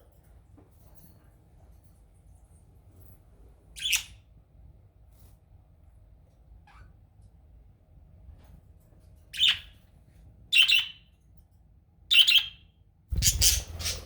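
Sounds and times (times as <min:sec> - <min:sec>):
budgerigars squawking: 0:13.2 - 0:14.0.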